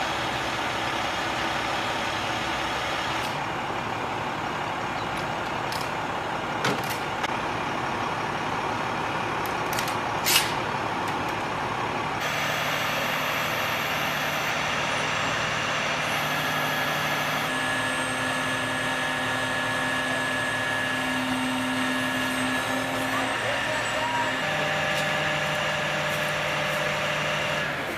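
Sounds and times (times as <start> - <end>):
heavy machinery running: 0.0 - 27.9.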